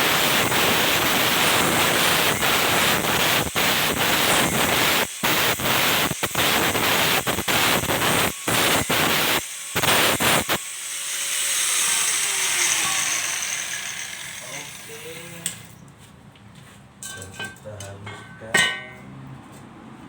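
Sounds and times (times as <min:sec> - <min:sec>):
angle grinder grinding metal: 0:00.0 - 0:15.8.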